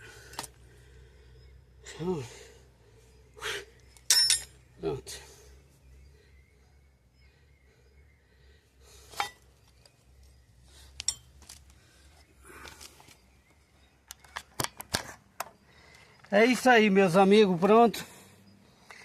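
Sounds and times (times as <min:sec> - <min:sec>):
metal tools clinking: 0:04.0 - 0:04.7, 0:11.0 - 0:11.6.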